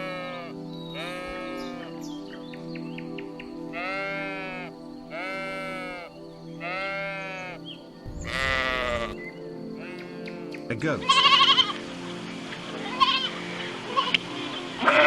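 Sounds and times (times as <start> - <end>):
sheep bleating: 0.0 - 2.0, 3.7 - 7.6, 8.2 - 9.2, 9.8 - 11.8, 12.8 - 14.2, 14.8 - 15.0
background music: 0.0 - 15.0.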